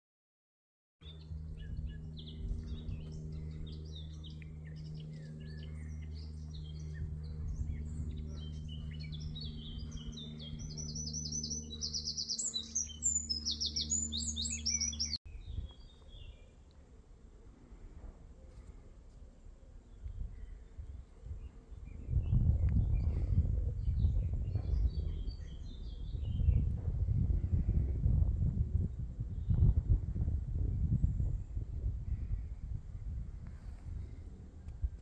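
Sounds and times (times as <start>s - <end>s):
songbirds singing and chirping: 1.0s - 16.8s, 19.6s - 27.9s
low hum: 1.0s - 35.0s
fast bird trill: 7.6s - 15.2s.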